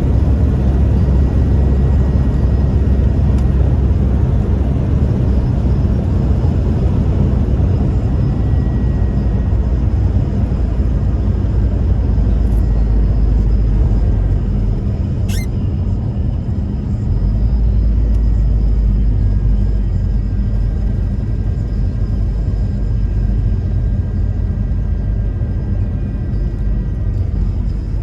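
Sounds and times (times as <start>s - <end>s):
pickup engine and road rumble: 0.0s - 28.0s
high rising chirp: 15.3s - 15.5s.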